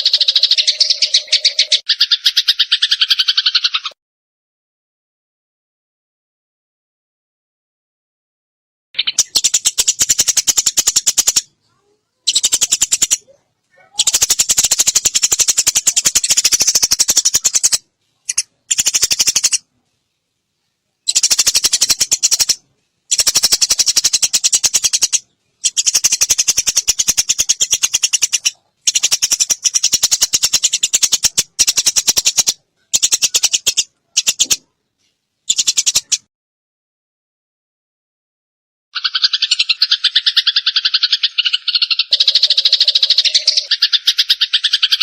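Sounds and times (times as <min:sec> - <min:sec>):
sparrows harsh chirping: 0:00.0 - 0:04.0, 0:09.0 - 0:19.7, 0:21.0 - 0:34.6, 0:35.5 - 0:36.3, 0:39.0 - 0:45.0.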